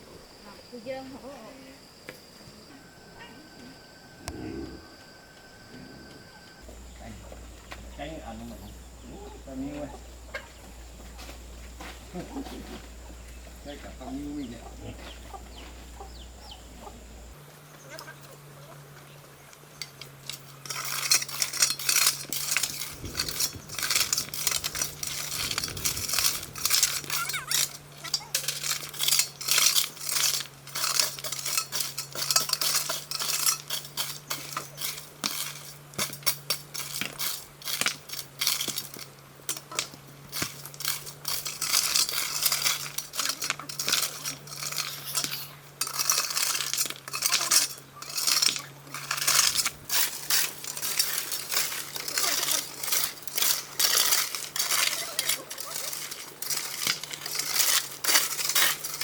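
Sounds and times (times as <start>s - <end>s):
steady low hum: 0.0s - 17.8s, 20.6s - 35.9s, 48.2s - 59.0s
rapid clinking and scraping: 19.8s - 59.0s.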